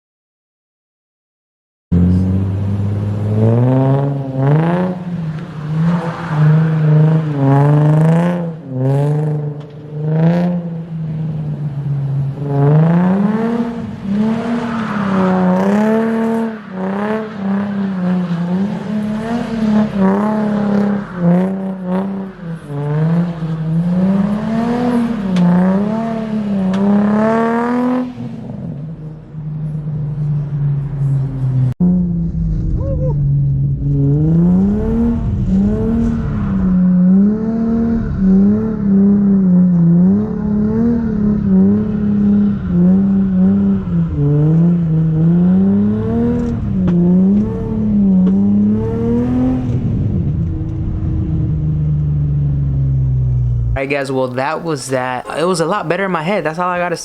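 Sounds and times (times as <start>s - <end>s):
car engine revving hard: 2.0s - 29.0s, 33.9s - 51.8s.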